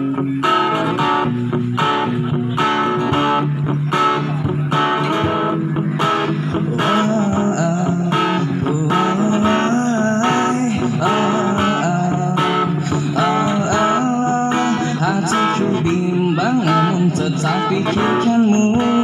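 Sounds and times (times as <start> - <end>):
strummed guitar with bass line: 0.0 - 19.0.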